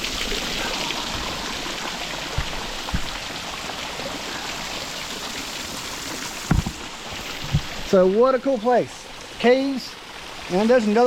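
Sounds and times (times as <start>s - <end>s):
small waterfall splashing over rock: 0.0s - 11.0s
soft low thumps: 2.3s - 3.3s, 6.5s - 7.8s.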